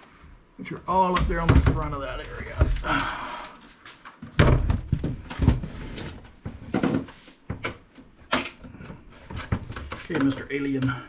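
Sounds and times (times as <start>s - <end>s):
knocks and clunks from computer case: 1.1s - 3.0s, 4.2s - 10.4s.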